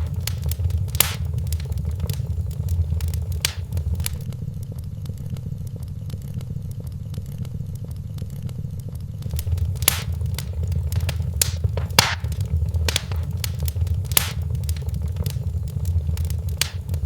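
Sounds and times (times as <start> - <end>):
low rumble: 0.0 - 4.2, 9.3 - 17.0
fire popping: 0.0 - 4.3, 9.2 - 17.0
wood fire crackling: 0.0 - 4.3, 9.2 - 17.0.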